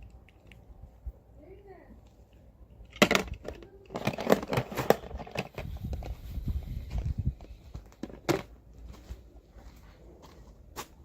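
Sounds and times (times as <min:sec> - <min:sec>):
toy packaging clicks and crackles: 0:02.8 - 0:05.7.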